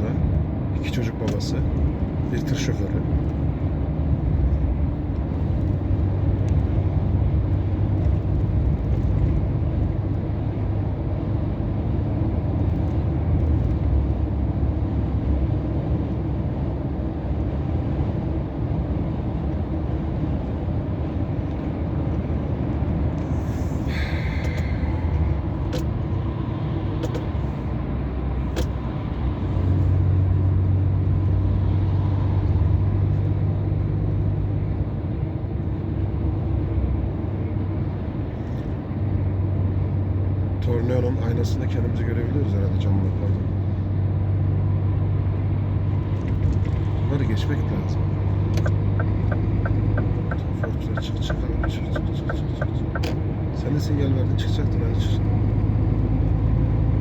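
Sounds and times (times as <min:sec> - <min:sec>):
road noise: 0:00.0 - 0:57.0
truck diesel engine droning: 0:19.9 - 0:28.4, 0:35.8 - 0:57.0.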